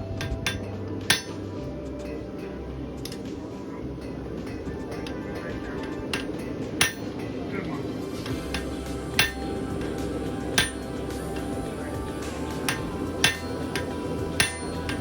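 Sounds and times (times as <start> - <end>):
low background hum: 0.0 - 15.0
hammer striking metal on anvil: 0.1 - 3.4, 4.0 - 7.5, 8.2 - 15.0.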